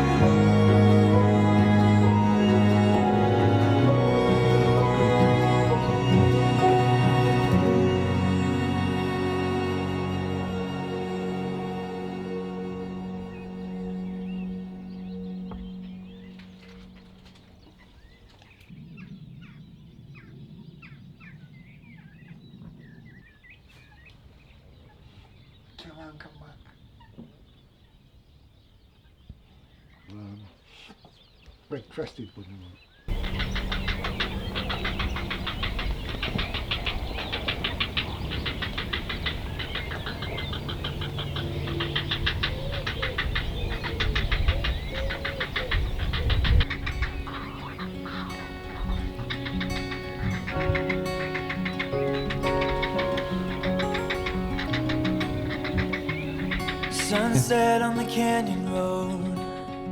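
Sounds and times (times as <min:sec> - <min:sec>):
small songbird singing: 0:00.0 - 0:59.9
bird calling high pips: 0:33.1 - 0:59.9.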